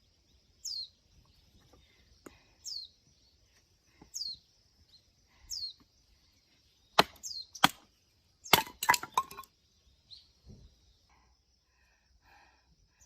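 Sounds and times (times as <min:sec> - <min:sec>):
bird chirping: 0:00.0 - 0:11.1
axe chopping wood: 0:07.0 - 0:07.9, 0:08.5 - 0:09.5.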